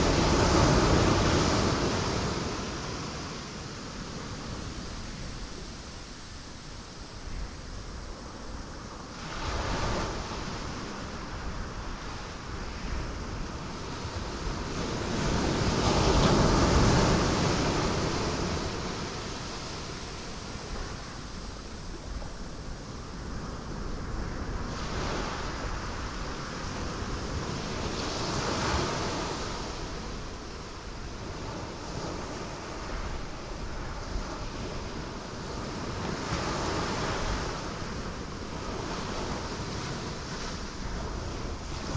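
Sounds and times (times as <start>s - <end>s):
continuous rush of surf: 0.0s - 41.9s.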